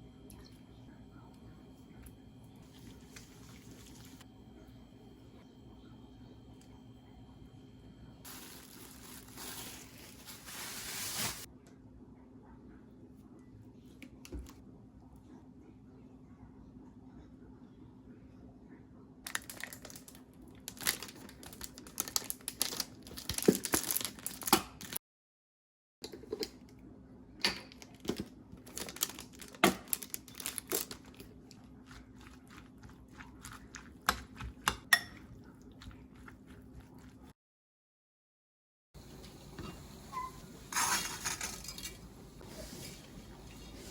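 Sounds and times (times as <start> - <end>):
low steady hum: 0.0 - 24.4, 39.0 - 43.9
crinkling: 8.3 - 11.5, 19.3 - 25.0, 27.8 - 32.6.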